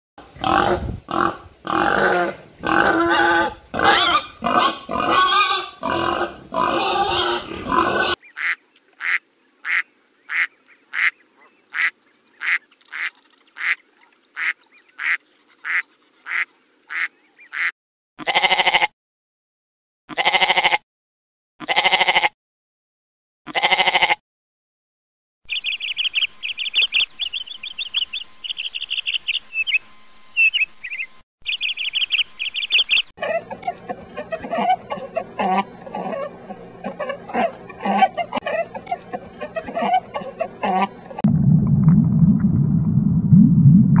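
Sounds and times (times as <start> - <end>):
pigs grunting and squealing: 0.3 - 8.2, 33.2 - 41.2
goat bleating: 0.4 - 8.2, 18.2 - 18.9, 20.1 - 20.8, 21.6 - 22.3, 23.5 - 24.2, 33.2 - 41.1
duck quacking: 0.4 - 13.8, 14.4 - 18.9, 33.2 - 41.2.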